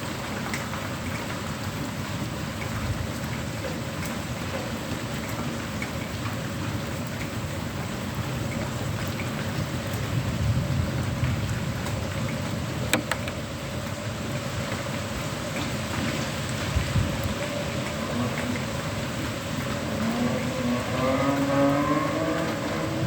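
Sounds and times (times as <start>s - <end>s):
heavy rain pattering: 0.0s - 23.0s
sharp tap: 12.9s - 13.4s.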